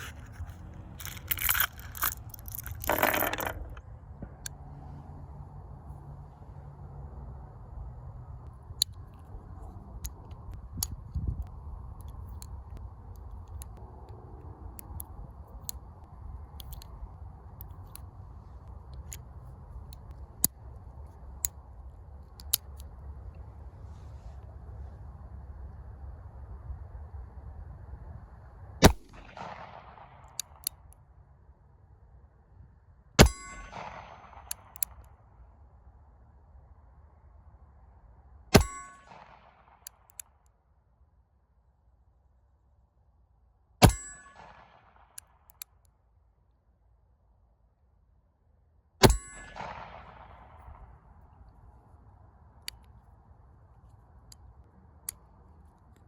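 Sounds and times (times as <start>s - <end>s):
low steady background noise: 0.0s - 56.0s
revolver gunshots: 49.0s - 50.6s.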